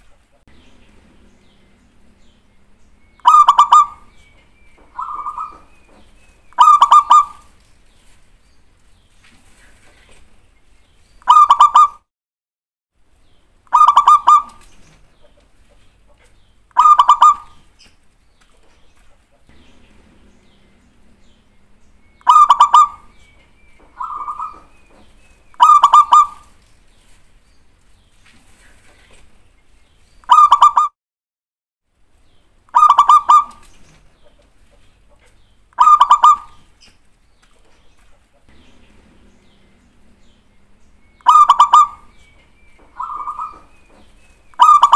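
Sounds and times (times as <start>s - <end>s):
dove song of clipped pitched notes: 0.5s - 8.2s, 13.7s - 15.0s, 16.7s - 17.6s, 19.5s - 27.1s, 32.7s - 34.0s, 35.7s - 37.0s, 38.5s - 44.9s.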